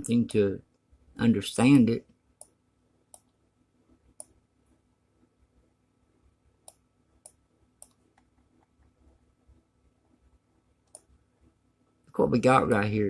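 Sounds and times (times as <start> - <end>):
computer mouse clicks: 2.4 - 3.4, 4.2 - 4.4, 6.6 - 9.2, 10.8 - 11.1.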